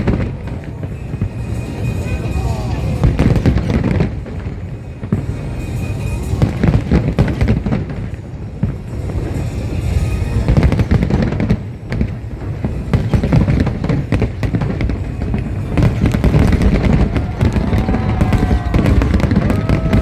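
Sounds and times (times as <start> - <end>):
fireworks booming and crackling: 0.0 - 20.0.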